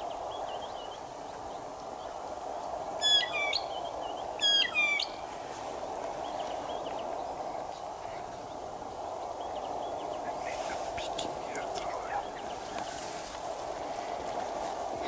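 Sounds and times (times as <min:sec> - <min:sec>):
steady background noise: 0:00.0 - 0:15.0
high clear bird calls: 0:03.0 - 0:03.8, 0:04.4 - 0:05.2.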